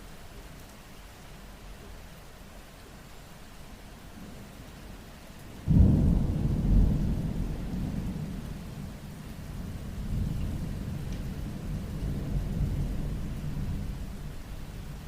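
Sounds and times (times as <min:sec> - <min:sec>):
steady rain: 0:00.0 - 0:15.0
thunder clap and rumble: 0:05.6 - 0:14.4.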